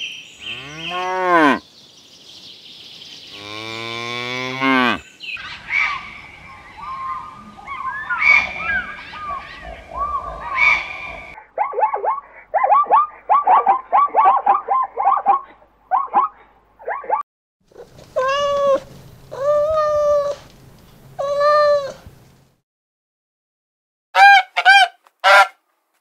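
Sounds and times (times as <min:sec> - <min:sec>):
cattle mooing: 0:00.4 - 0:01.6, 0:03.4 - 0:05.0.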